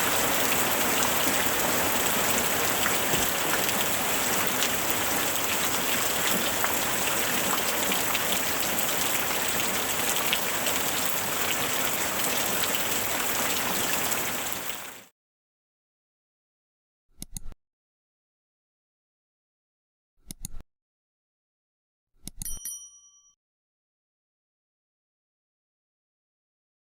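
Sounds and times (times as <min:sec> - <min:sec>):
rain falling: 0:00.0 - 0:15.1.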